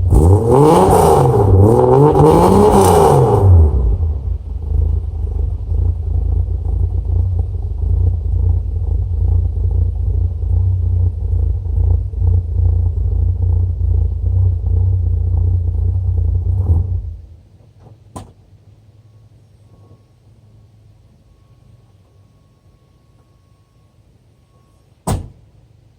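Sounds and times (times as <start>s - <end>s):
engine low rumble: 0.0s - 25.9s.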